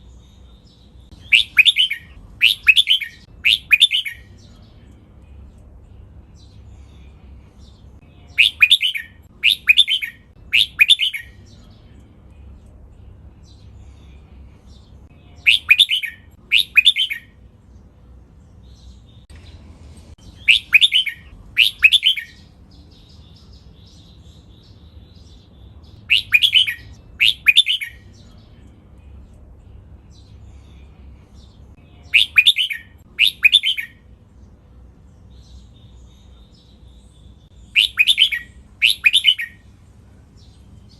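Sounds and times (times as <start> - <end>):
bird singing warbled phrases: 0.0 - 40.9
faint low rumble: 4.2 - 8.4, 11.2 - 15.5, 17.2 - 26.1, 27.9 - 32.2.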